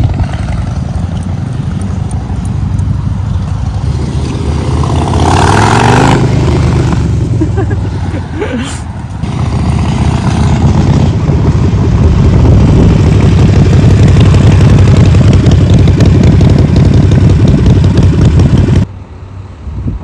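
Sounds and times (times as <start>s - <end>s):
motorcycle engine running: 0.0s - 7.8s, 9.2s - 18.9s.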